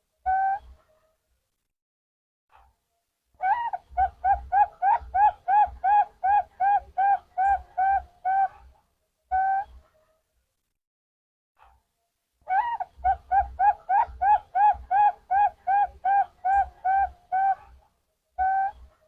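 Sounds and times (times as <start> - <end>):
dove cooing: 0.3 - 0.8, 3.4 - 8.7, 12.5 - 17.8, 18.4 - 18.9.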